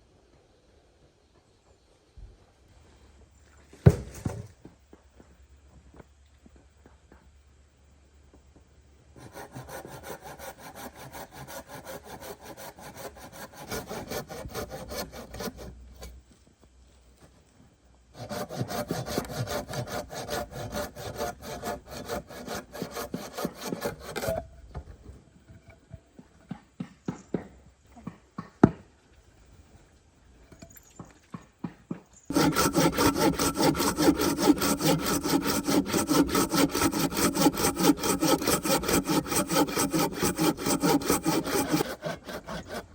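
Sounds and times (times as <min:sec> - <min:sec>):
hand saw cutting wood: 0:09.2 - 0:16.2, 0:18.1 - 0:24.5, 0:32.3 - 0:42.9.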